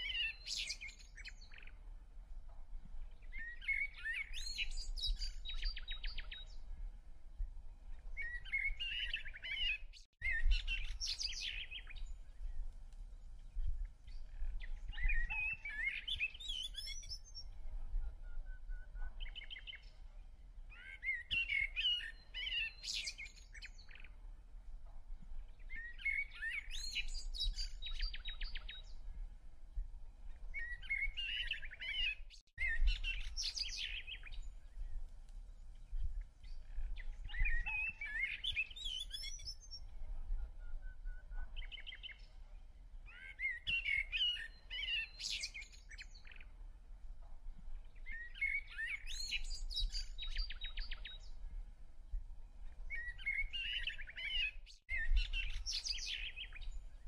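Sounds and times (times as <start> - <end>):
songbird chirps and trills: 3.0 - 6.8, 29.8 - 46.8, 47.7 - 51.6, 52.2 - 57.0.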